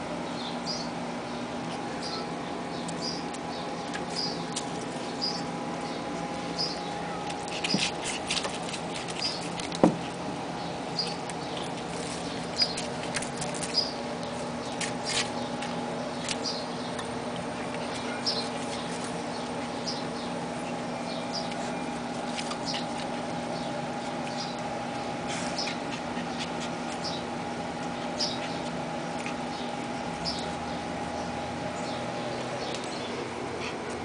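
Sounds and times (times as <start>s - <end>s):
steady hum: 0.0s - 34.0s
puppies squeaking: 10.6s - 34.0s.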